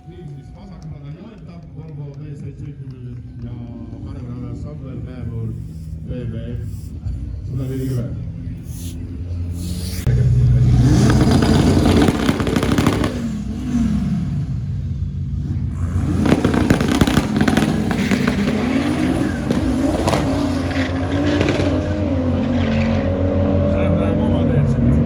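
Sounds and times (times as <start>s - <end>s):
exhaust crackling: 4.6s - 22.2s
car engine revving hard: 8.6s - 25.0s.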